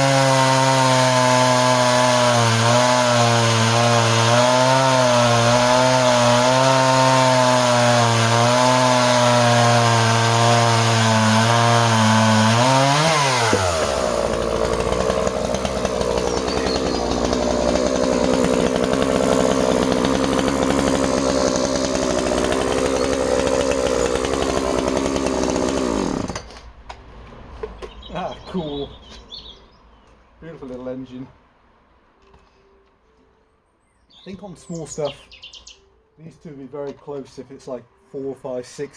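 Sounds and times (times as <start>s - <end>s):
chainsaw engine at high throttle: 0.0s - 26.6s
chain cutting wood: 0.0s - 26.7s.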